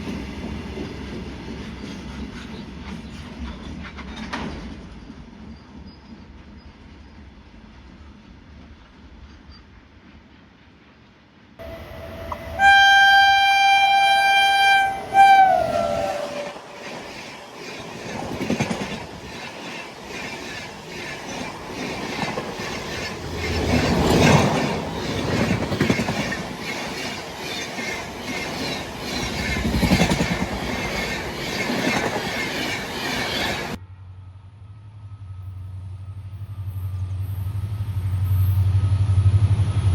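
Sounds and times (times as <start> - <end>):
locomotive horn: 11.6 - 16.7
train wagons rattling: 15.1 - 33.8
wheels clacking over rail joints: 15.5 - 33.8.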